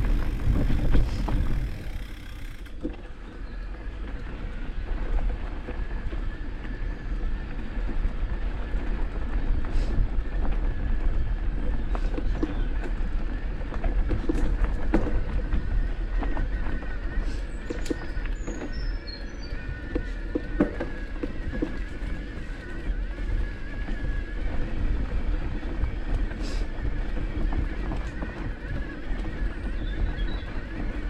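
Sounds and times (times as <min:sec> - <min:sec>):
distant motorcycle engines rumbling: 0:00.0 - 0:04.9
faint engine whine: 0:00.0 - 0:31.0.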